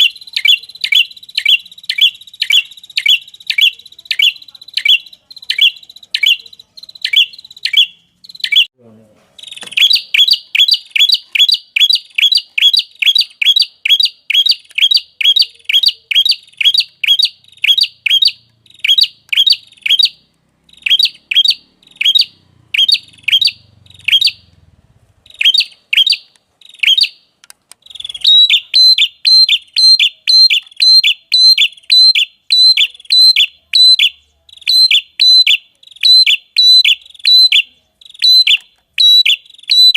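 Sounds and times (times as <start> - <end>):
songbird chirping: 0.0 - 8.8, 9.4 - 39.9.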